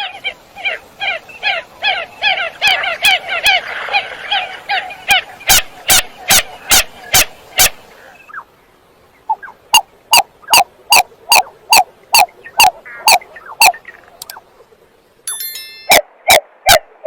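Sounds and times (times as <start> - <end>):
coot nasal calls: 0.0 - 8.5, 9.2 - 14.4
sharp bird clicks: 12.6 - 14.4.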